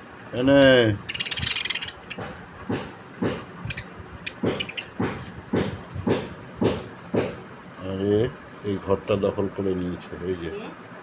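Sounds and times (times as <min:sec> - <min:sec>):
pet birds calling: 0:00.4 - 0:07.5.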